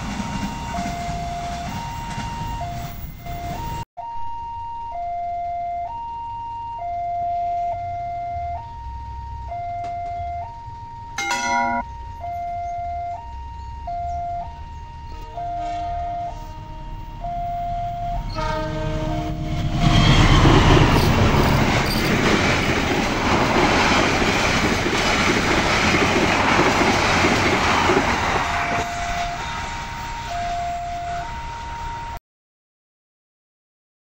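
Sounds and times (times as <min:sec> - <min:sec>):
train passing over crossing: 0:00.0 - 0:03.8, 0:04.4 - 0:32.2
level crossing two-tone chime: 0:11.2 - 0:11.8.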